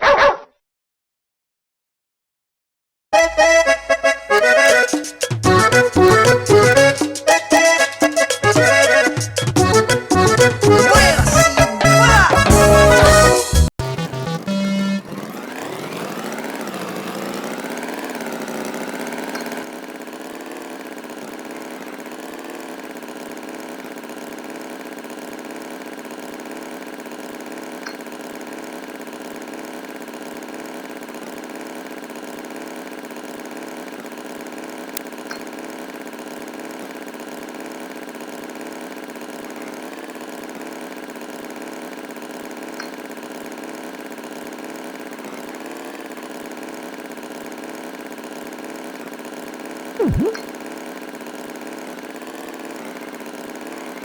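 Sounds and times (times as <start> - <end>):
engine idling: 13.8 - 54.0.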